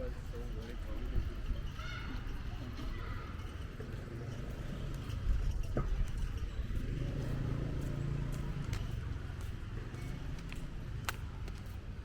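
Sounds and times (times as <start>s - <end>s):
vehicle engine humming: 4.0s - 12.0s.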